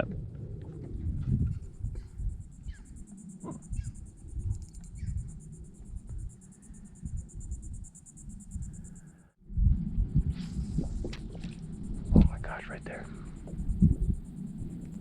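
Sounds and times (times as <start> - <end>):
wind buffeting microphone: 0.0 - 15.0
insect buzzing: 2.0 - 9.4
water lapping: 10.3 - 12.1.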